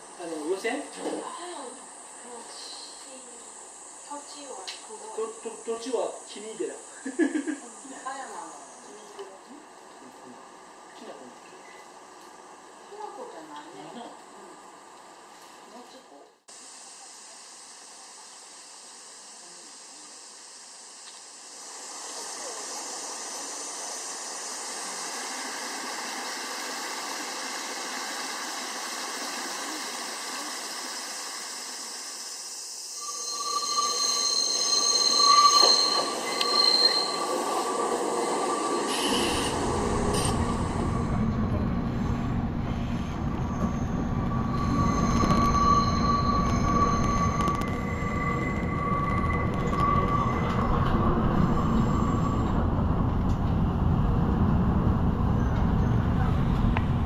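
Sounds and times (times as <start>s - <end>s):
rail car running on track: 21.5s - 57.0s
wheel squeal: 33.0s - 41.2s, 43.0s - 52.7s
heavy low rumble: 33.0s - 57.0s.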